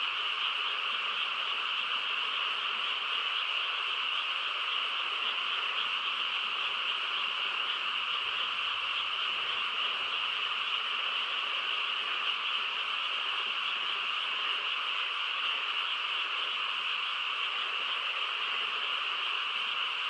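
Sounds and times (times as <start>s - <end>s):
frogs croaking in chorus: 0.0s - 20.0s.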